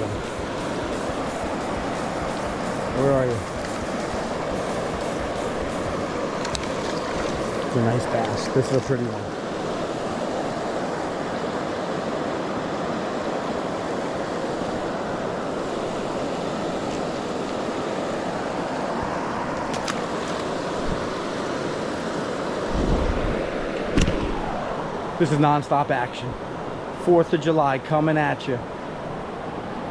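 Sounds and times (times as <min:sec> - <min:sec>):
flowing river water: 0:00.0 - 0:22.8.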